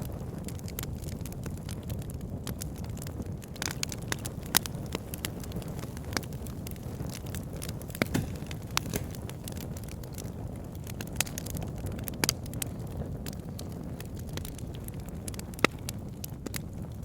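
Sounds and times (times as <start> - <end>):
burning wood crackling and popping: 0.0 - 17.0
flames rumbling: 0.0 - 17.0.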